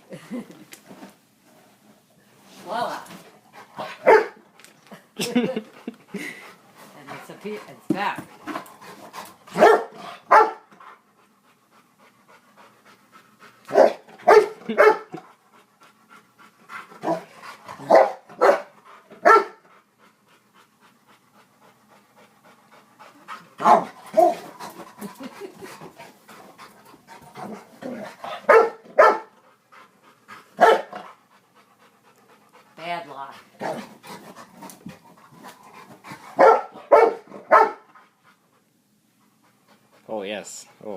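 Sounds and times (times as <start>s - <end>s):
dog barking: 4.0s - 4.4s, 9.6s - 10.7s, 13.7s - 15.1s, 17.8s - 19.6s, 23.6s - 24.4s, 28.4s - 29.3s, 30.6s - 30.9s, 36.4s - 37.8s
dog panting: 4.9s - 40.9s.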